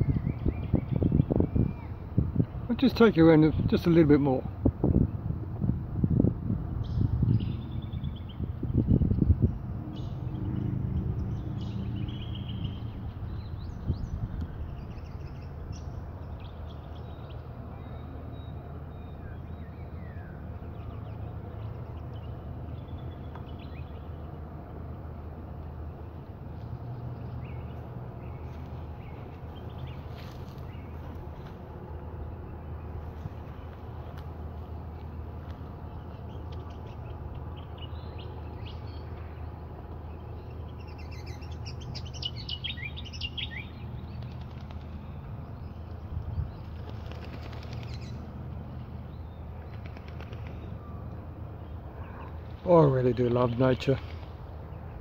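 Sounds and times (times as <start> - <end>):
birds chirping and whistling: 0.0 - 2.1, 6.8 - 21.0, 40.2 - 44.2
birds chirping: 0.0 - 5.2, 6.7 - 55.0
steady low rumble: 4.5 - 17.9.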